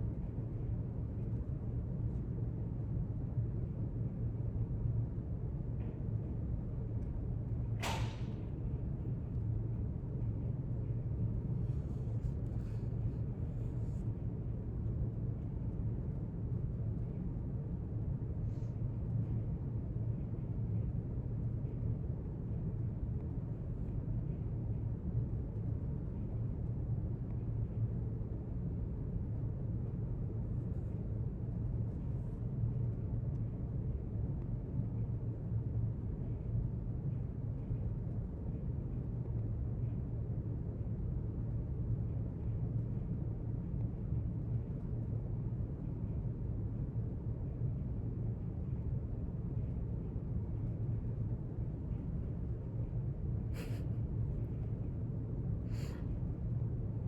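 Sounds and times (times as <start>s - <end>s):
low room hum: 0.0s - 57.0s
sharp click: 7.8s - 8.4s.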